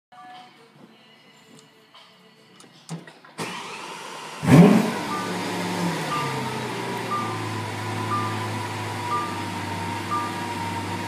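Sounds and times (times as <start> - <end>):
car engine starting and idling: 3.4 - 11.0
short electronic beep: 5.0 - 11.0.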